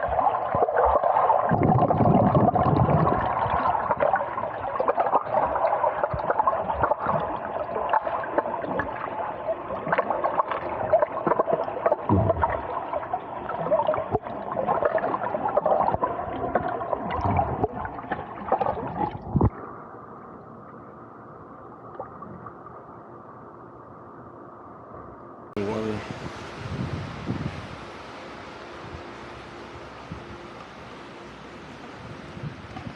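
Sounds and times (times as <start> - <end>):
small crackles and splashes: 0.0 - 19.6
underwater gurgling and sloshing: 0.0 - 32.9
dull steady hiss: 19.3 - 32.9.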